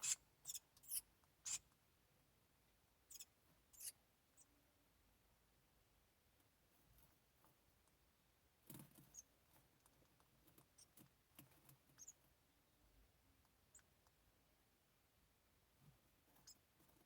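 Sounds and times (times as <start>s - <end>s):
nestlings squeaking: 0.0s - 1.7s, 3.1s - 4.5s, 8.7s - 9.3s, 10.6s - 11.1s, 11.8s - 12.2s, 13.7s - 14.0s, 16.4s - 16.7s
rustling and scratching in nest: 8.6s - 12.3s.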